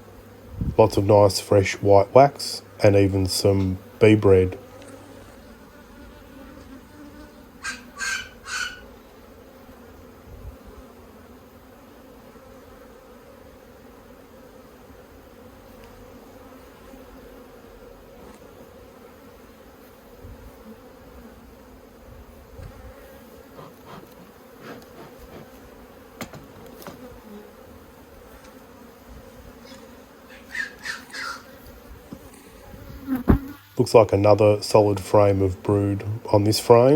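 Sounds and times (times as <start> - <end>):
honeybees buzzing: 0.0 - 36.9.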